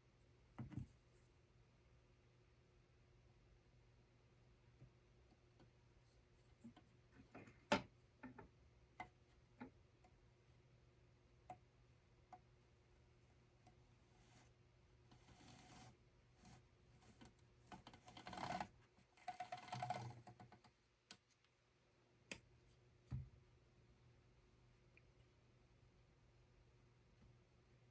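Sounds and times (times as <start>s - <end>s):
rustling and scraping: 14.0s - 21.5s.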